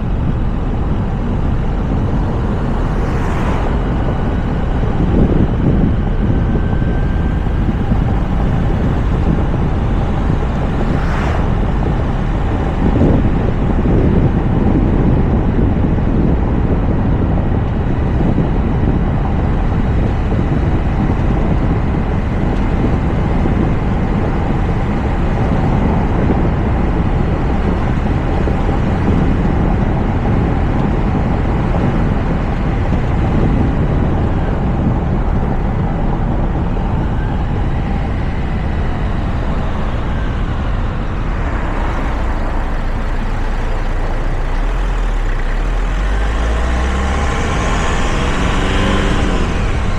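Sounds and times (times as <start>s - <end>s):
faint whine shifting pitch: 0.0s - 14.0s, 33.8s - 44.4s
air rushing past: 0.0s - 15.0s, 31.8s - 45.0s, 45.8s - 49.9s
car engine drone: 0.0s - 49.9s
tyre and road noise: 0.0s - 49.9s.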